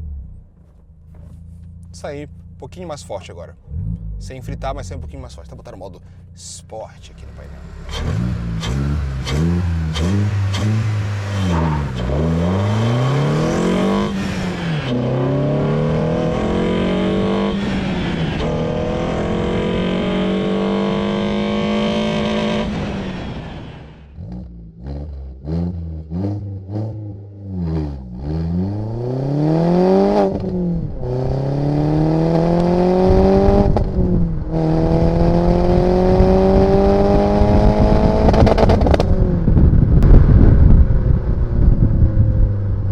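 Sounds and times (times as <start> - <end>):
car engine accelerating: 0.0 - 42.9
exhaust pops: 0.2 - 6.2, 32.6 - 42.2.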